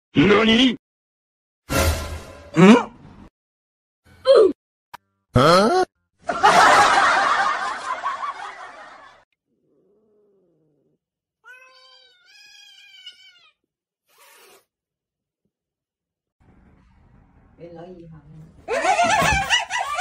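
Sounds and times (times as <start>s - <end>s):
cat wailing: 9.6s - 13.6s.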